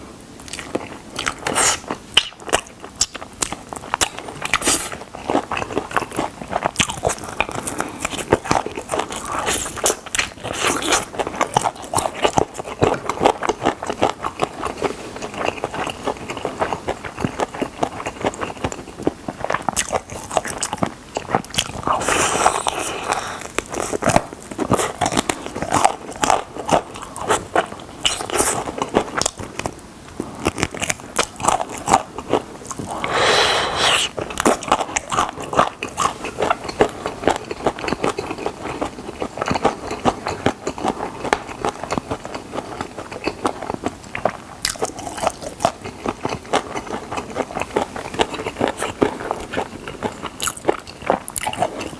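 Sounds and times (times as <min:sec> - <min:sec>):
person chewing and biting: 0:00.4 - 0:51.9.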